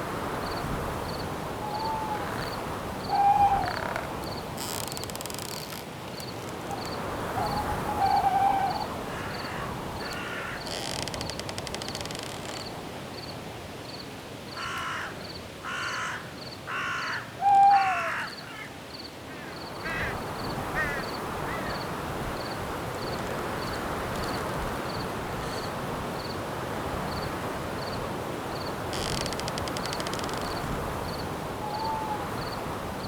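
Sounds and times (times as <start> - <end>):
wind in trees: 0.0 - 33.0
cricket chirping: 0.3 - 13.3, 27.1 - 32.7
crow cawing: 1.6 - 4.1, 7.4 - 10.8, 14.6 - 20.2, 20.8 - 21.8.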